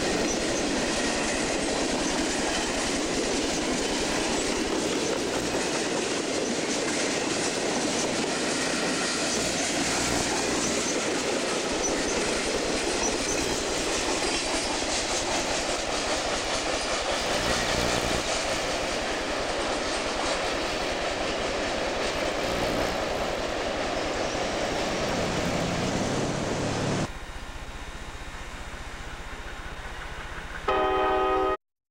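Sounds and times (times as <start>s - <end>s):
train wheels clicking over rail joints: 0.0s - 27.1s, 28.7s - 30.7s
light wheel squeal: 8.3s - 16.4s.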